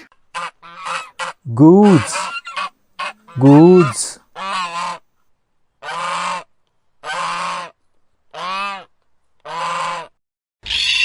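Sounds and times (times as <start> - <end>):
goose honking: 9.5 - 10.1.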